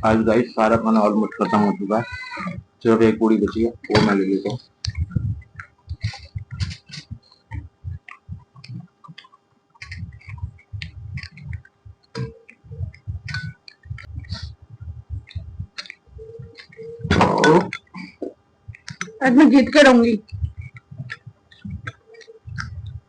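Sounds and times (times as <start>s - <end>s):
close chewing: 4.4s - 19.2s, 20.2s - 23.0s.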